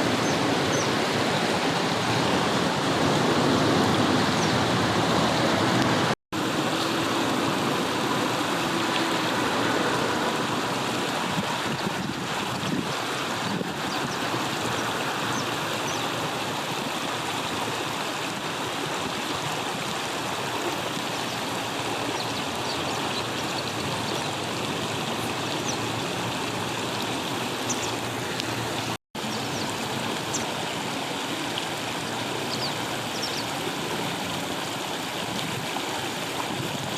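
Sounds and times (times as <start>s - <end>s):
river water flowing over stones: 0.0s - 36.9s.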